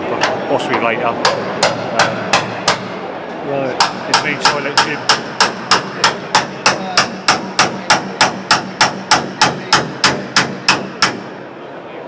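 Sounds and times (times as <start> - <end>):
hammer striking steel panel: 1.2 - 3.0, 3.8 - 11.4.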